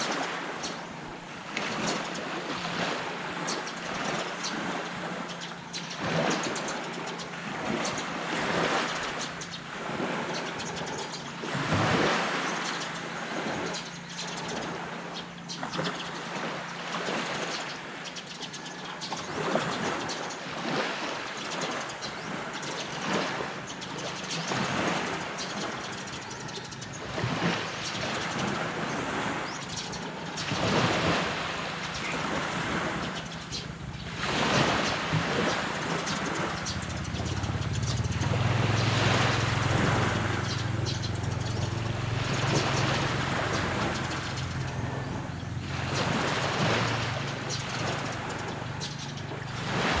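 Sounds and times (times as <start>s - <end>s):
low engine hum: 0.0s - 50.0s
waves washing onto beach: 0.0s - 50.0s.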